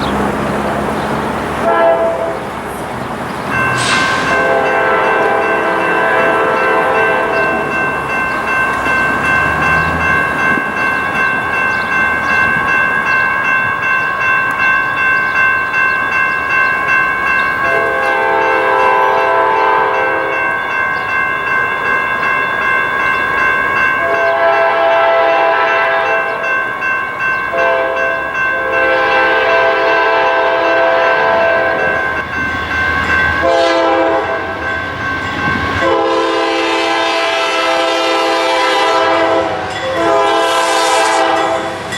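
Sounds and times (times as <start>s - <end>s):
crossing bells ringing: 0.0s - 41.9s
train rumbling past: 0.0s - 41.9s
locomotive horn blasts: 1.6s - 2.5s, 3.8s - 7.8s, 17.6s - 20.4s, 24.0s - 26.5s, 27.5s - 32.0s, 33.4s - 34.7s, 35.8s - 41.8s.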